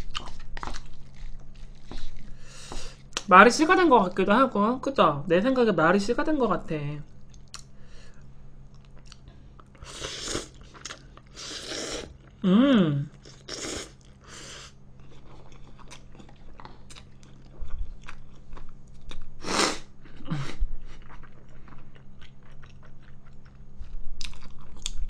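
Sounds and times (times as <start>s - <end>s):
noodle slurp: 9.8s - 10.6s, 11.3s - 12.1s.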